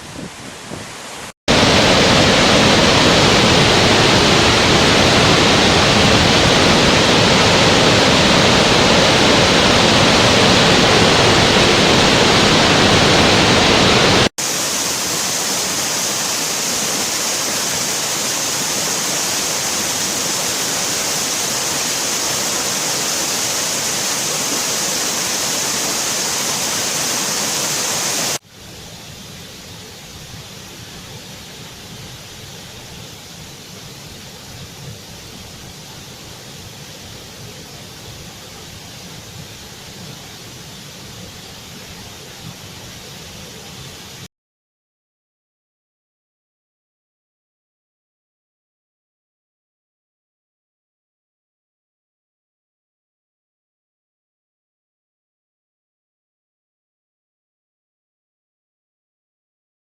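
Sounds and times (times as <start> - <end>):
quieter hissy waterfall: 0.0 - 44.3
waterfall roaring: 0.0 - 44.3.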